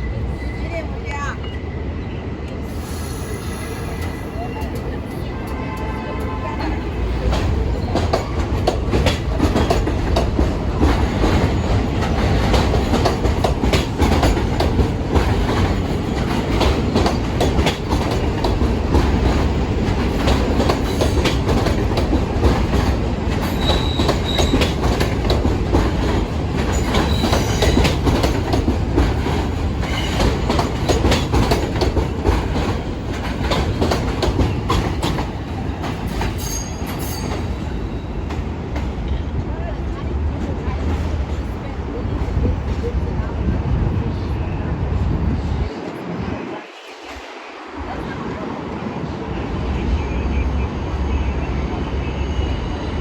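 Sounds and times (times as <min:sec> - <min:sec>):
subway train rumble: 0:00.0 - 0:53.0.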